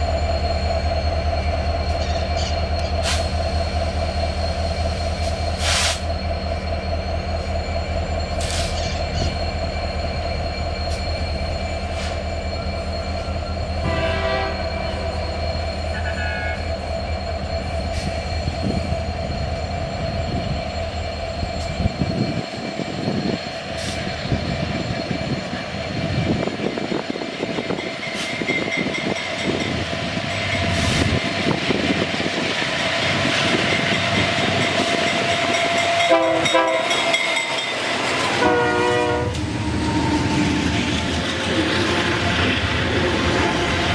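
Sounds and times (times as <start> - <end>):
locomotive engine hum: 0.0 - 43.9
train wagons rolling on rails: 0.0 - 43.9
train horn: 13.8 - 15.0, 35.8 - 37.1, 38.2 - 40.4.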